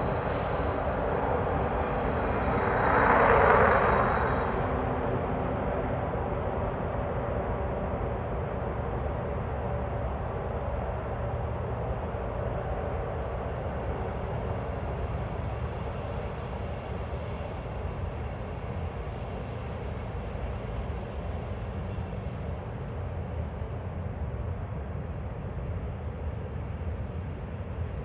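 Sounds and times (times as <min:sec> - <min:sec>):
freight train rumbling past: 0:00.0 - 0:15.7.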